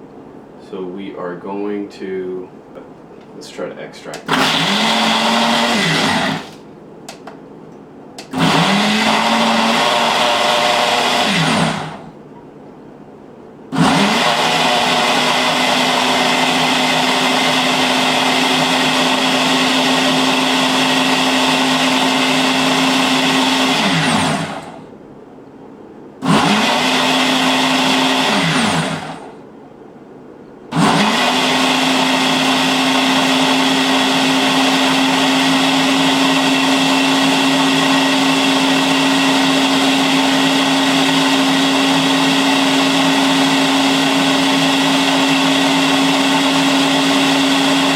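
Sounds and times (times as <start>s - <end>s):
blender motor running: 4.2s - 6.6s, 8.2s - 12.1s, 13.7s - 24.8s, 26.2s - 29.4s, 30.7s - 47.9s.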